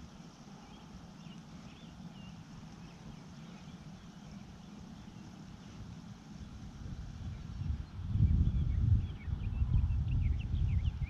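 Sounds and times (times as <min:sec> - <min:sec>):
faint bird chirps: 0:00.0 - 0:05.8.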